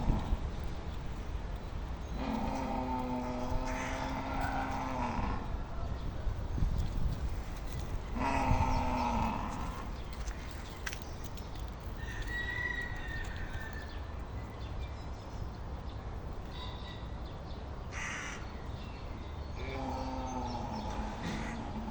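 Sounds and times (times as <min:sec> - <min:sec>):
steady low rumble: 0:00.0 - 0:16.5
animal calls: 0:02.2 - 0:06.0, 0:19.6 - 0:21.9.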